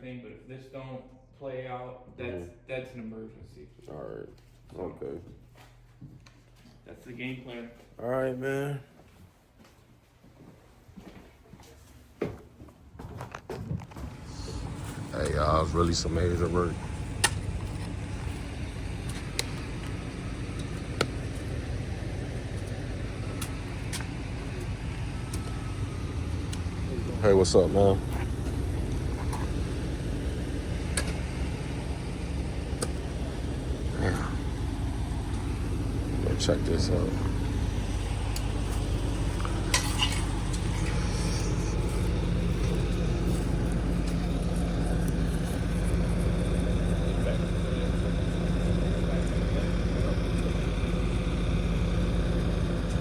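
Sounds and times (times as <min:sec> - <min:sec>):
machinery engine droning: 0:13.8 - 0:53.0
metal clanks: 0:39.4 - 0:41.4.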